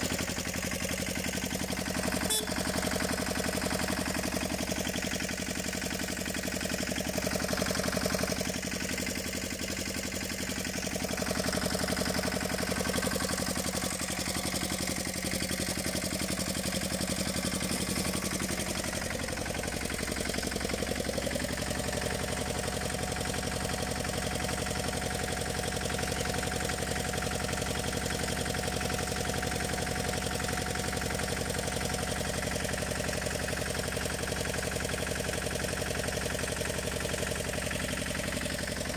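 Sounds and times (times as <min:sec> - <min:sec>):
small tractor engine running: 0:00.0 - 0:38.9.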